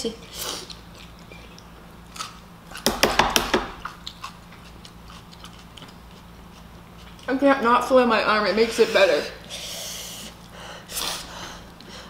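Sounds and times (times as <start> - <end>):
chewing: 0.4 - 2.9, 3.8 - 7.4.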